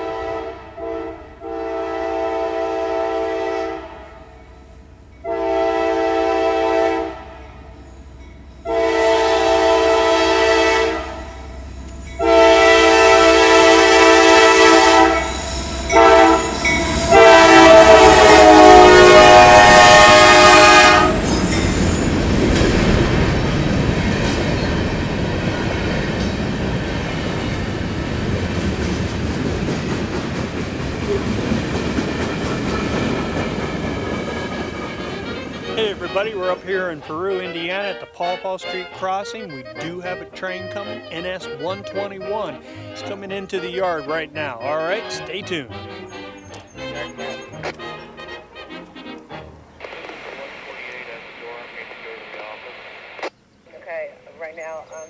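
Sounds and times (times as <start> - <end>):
locomotive horn blasts: 0.0 - 23.6, 32.9 - 50.0
train passing: 0.0 - 55.0.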